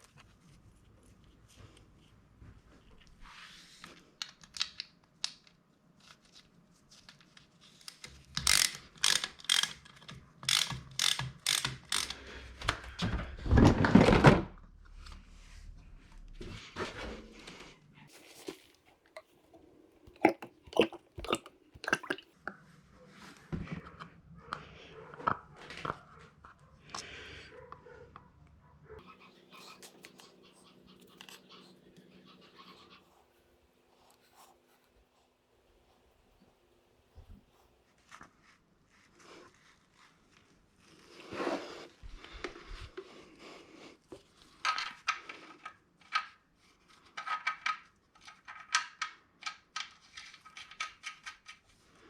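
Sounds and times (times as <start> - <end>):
tools clicking and rattling: 8.4 - 12.2.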